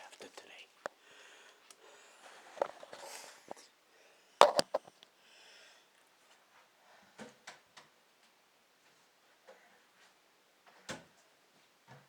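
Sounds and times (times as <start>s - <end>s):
brief rustle: 4.4s - 4.9s.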